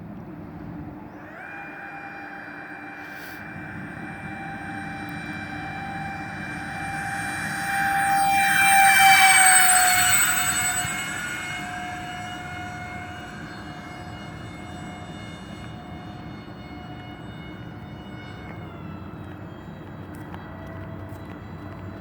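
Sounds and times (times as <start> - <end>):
model airplane fan whine: 0.0 - 22.0.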